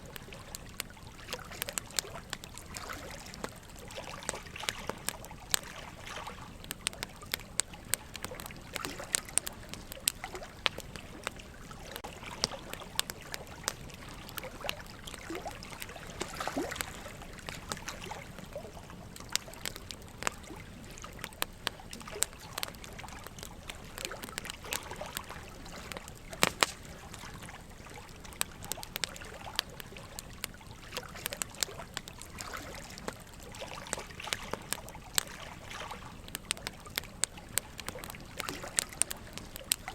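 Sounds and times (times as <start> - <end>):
trickle of running water: 0.0 - 39.9
wood fire crackling: 0.0 - 39.9.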